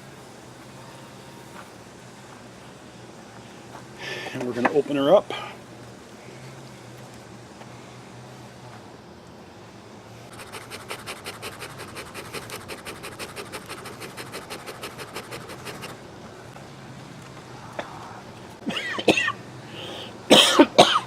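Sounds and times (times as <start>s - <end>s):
hive tool scraping wooden bars: 10.3s - 16.0s.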